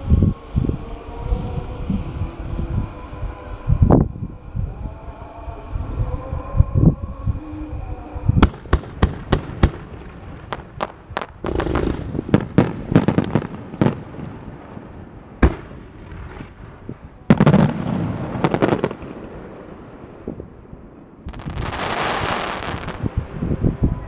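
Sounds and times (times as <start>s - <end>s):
fireworks launching and bursting: 8.4s - 23.4s.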